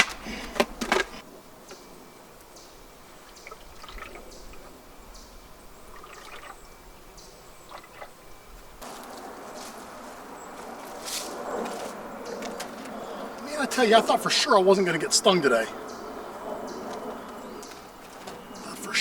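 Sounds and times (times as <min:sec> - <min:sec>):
syrup dripping and trickling: 0:03.4 - 0:04.3, 0:05.9 - 0:06.6.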